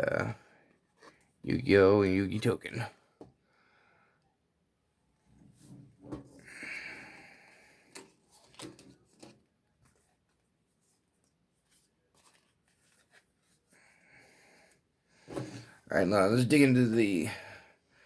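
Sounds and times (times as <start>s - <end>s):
trading cards rustling: 8.0s - 13.9s.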